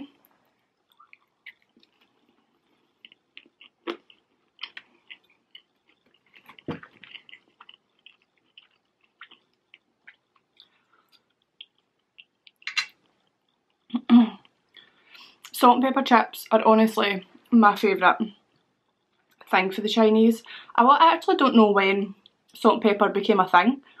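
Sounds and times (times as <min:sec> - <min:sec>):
person chewing crunchy food: 0:00.3 - 0:14.9.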